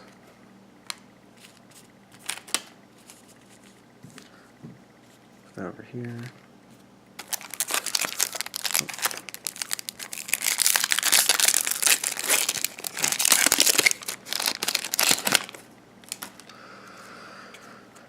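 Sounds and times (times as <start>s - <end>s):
plastic wrapper crinkling and tearing: 7.2s - 16.5s.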